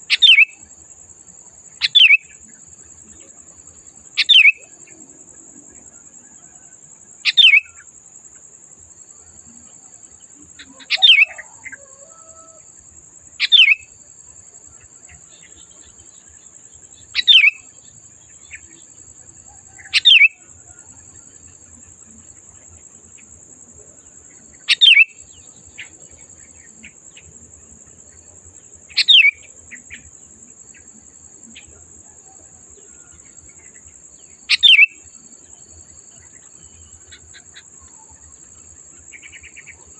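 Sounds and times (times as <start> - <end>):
bulbul sharp downsweeping calls: 0.0 - 0.6, 1.7 - 2.4, 4.2 - 4.8, 7.2 - 7.8, 10.5 - 11.8, 13.4 - 14.0, 17.0 - 18.8, 19.6 - 20.5, 24.5 - 26.0, 28.9 - 30.0, 34.4 - 35.1.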